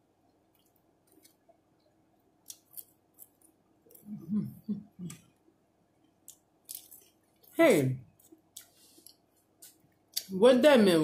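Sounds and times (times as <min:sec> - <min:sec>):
person chewing food: 0:00.3 - 0:04.1, 0:06.1 - 0:10.3.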